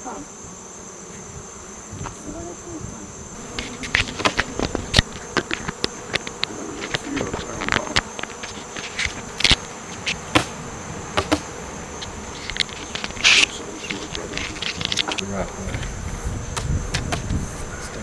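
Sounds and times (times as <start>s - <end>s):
bees buzzing: 0.0s - 18.0s
sharp clicks and knocks: 3.4s - 15.9s.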